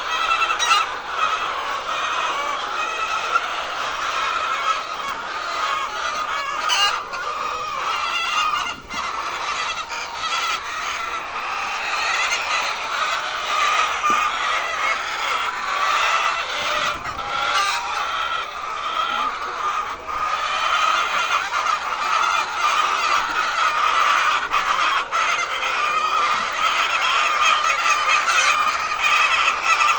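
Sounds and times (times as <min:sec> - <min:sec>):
hens clucking: 0:00.0 - 0:29.9.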